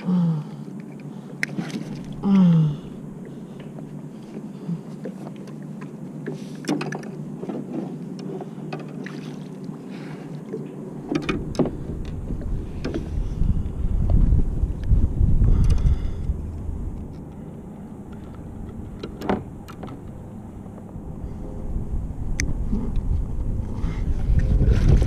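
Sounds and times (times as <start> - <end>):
water sloshing against a kayak: 0.6 - 21.4
water splashes: 8.4 - 11.9
wind rumble on microphone: 10.7 - 25.0.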